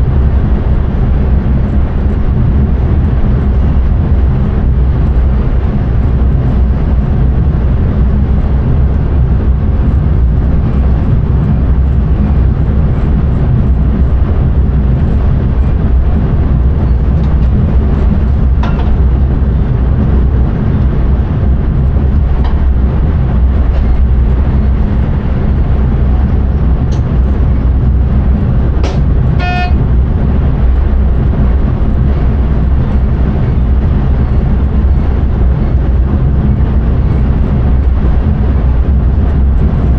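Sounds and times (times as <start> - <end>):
train wheels rumbling on track: 0.0 - 39.9
brief tone: 29.4 - 29.9.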